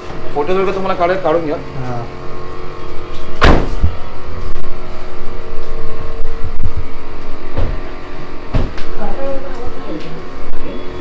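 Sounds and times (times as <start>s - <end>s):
sharp thump: 3.4s - 4.0s.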